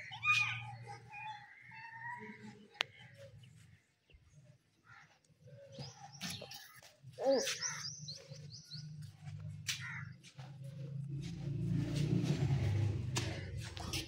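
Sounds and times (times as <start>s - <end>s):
caged birds chirping: 0.0s - 14.0s.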